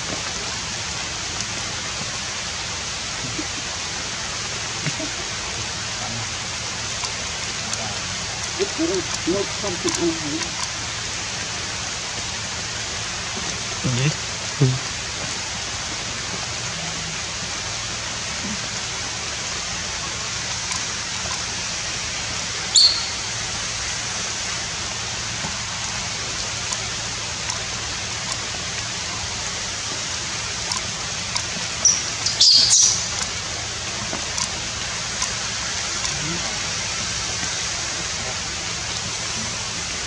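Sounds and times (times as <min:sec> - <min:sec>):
rain hissing in forest: 0:00.0 - 0:40.0
high-pitched chirps and squeaks: 0:22.7 - 0:23.2, 0:31.8 - 0:33.0.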